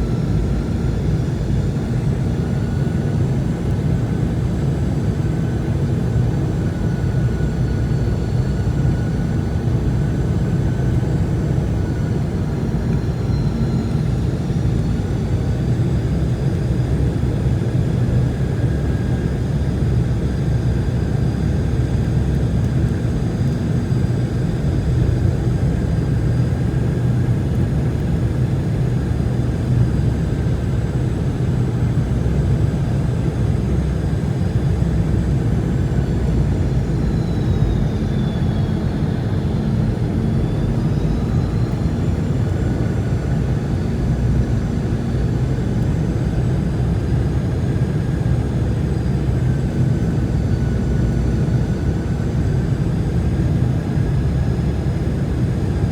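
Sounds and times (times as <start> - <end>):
faint high engine whine: 0.0 - 55.9
rush of jet engines and airflow: 0.0 - 55.9.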